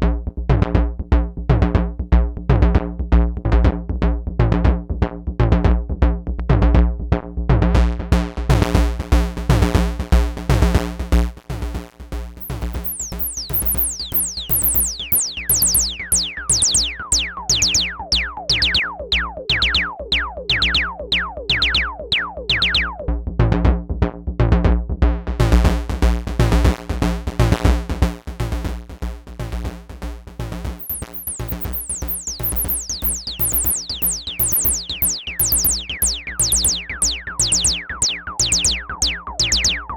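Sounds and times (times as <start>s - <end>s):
rapid pitched synth hits: 12.4s - 19.8s, 30.8s - 39.9s
high tones sweeping downward: 12.4s - 20.0s, 30.8s - 39.9s.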